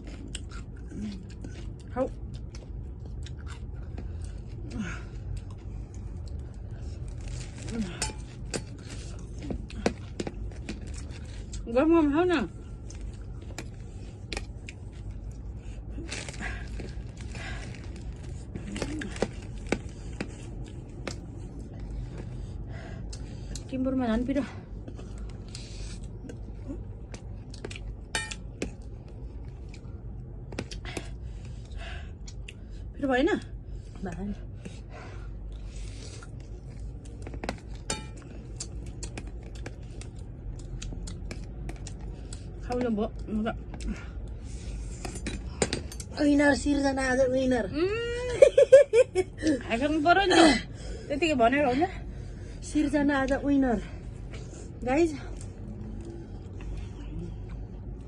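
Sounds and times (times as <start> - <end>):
eating crunches and clicks: 0.0 - 7.8, 35.9 - 44.0
steady low hum: 0.0 - 58.0.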